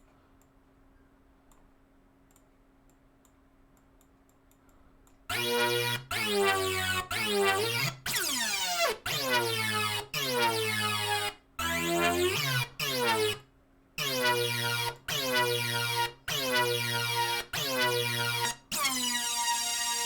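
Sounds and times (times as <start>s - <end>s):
steady synth bass note: 5.3s - 13.4s, 14.0s - 18.8s
synthesizer notes with sweeping attack: 5.3s - 13.4s, 14.0s - 20.0s.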